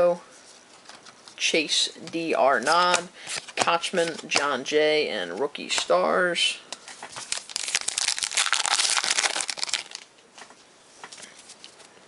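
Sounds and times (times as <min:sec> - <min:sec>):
card pack wrapper crinkling: 0:07.1 - 0:10.1.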